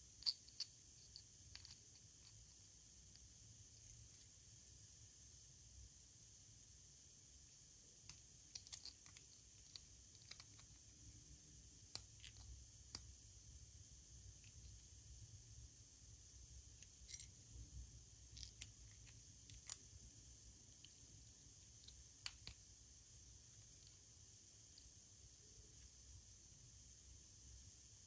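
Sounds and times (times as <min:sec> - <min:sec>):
background hiss: 0:00.0 - 0:28.0
small objects clicking: 0:00.2 - 0:02.5, 0:08.0 - 0:10.8, 0:18.3 - 0:19.9, 0:21.8 - 0:22.6.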